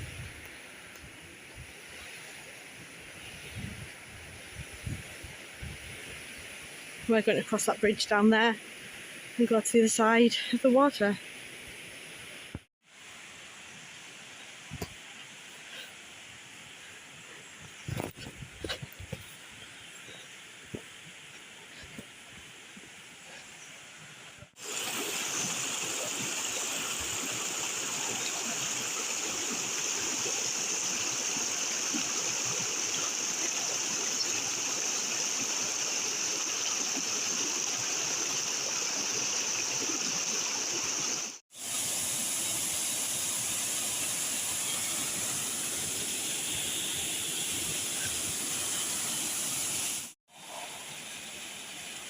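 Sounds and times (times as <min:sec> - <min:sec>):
waterfall rushing: 0:24.6 - 0:52.0.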